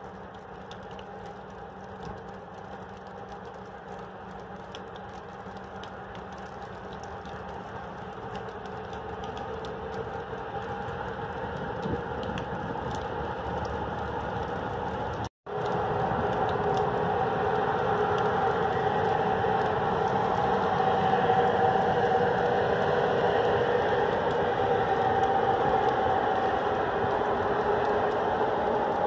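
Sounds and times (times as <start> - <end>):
faint ticks: 0.0 - 15.8
electric locomotive hum and rumble: 0.0 - 29.0.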